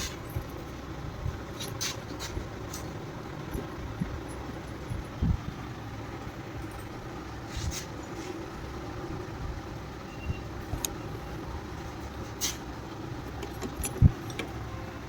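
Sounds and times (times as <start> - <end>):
motor vehicles rumbling: 0.0 - 15.0
sharp clicks and knocks: 13.2 - 14.6.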